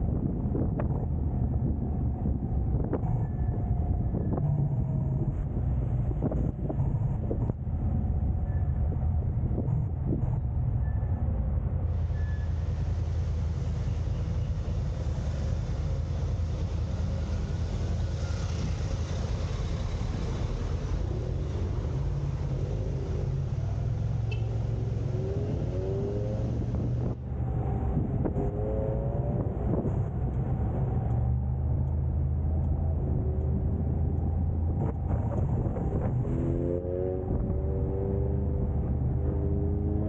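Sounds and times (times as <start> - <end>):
car engine and road noise: 0.0 - 40.0
car engine accelerating: 11.9 - 40.0.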